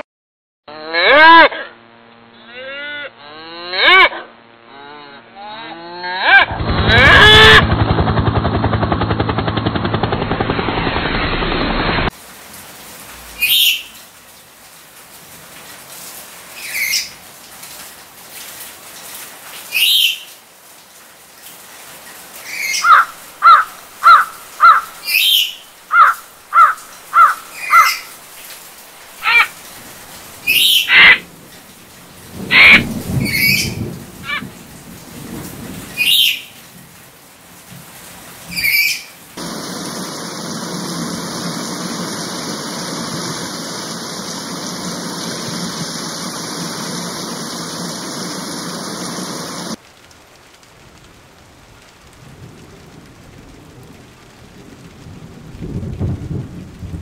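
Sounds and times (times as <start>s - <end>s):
cow mooing: 0.7s - 1.5s, 2.6s - 7.4s
bird chirping: 13.4s - 14.0s, 22.6s - 28.1s, 30.5s - 31.2s.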